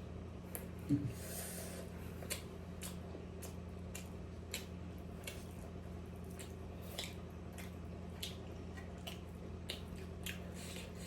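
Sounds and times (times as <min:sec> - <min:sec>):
steady low hum: 0:00.0 - 0:11.0
wet chewing and mouth smacks: 0:02.2 - 0:11.0.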